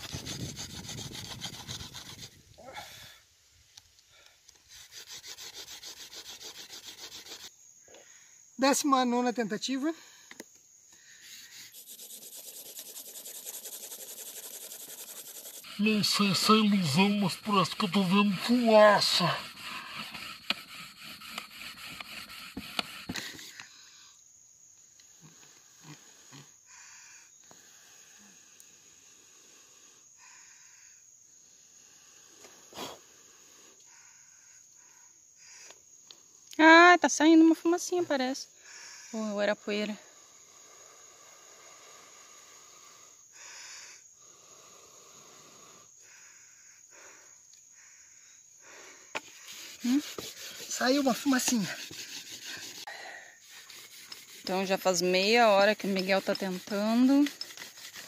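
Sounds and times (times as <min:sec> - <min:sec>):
bamboo rasping against bamboo: 0:00.0 - 0:02.7, 0:04.5 - 0:07.6, 0:11.0 - 0:23.7, 0:49.2 - 0:58.0.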